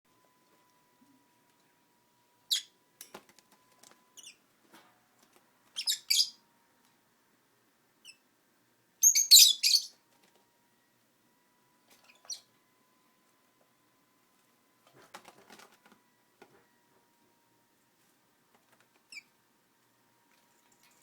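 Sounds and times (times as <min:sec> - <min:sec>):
lovebirds chirping: 0:02.5 - 0:02.7, 0:04.2 - 0:04.4, 0:05.8 - 0:06.4, 0:09.0 - 0:10.0.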